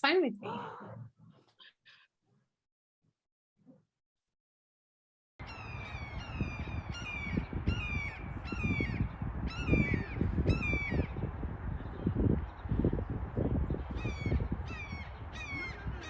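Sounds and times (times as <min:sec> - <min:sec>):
bird harsh calls: 0:05.4 - 0:11.2, 0:13.9 - 0:16.0
wind on microphone: 0:05.4 - 0:16.0.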